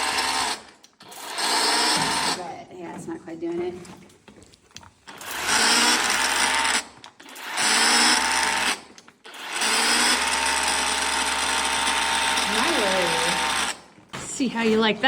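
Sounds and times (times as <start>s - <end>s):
pressure washer pump and water jet: 0.0s - 2.4s, 5.1s - 13.8s.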